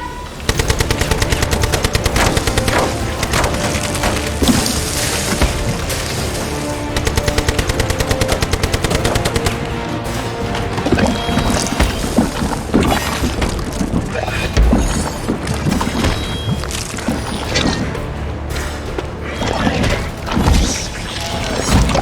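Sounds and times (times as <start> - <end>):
film score music: 0.0 - 22.0
automatic gunfire: 0.5 - 9.7.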